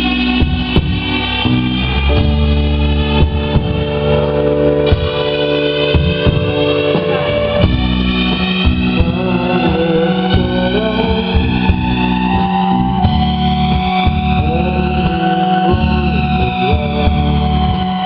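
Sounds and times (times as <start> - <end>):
bass: 0.0 - 18.0
drums: 0.0 - 18.0
electric guitar bending notes: 0.0 - 18.0
sustained synthesizer tones: 0.0 - 18.0.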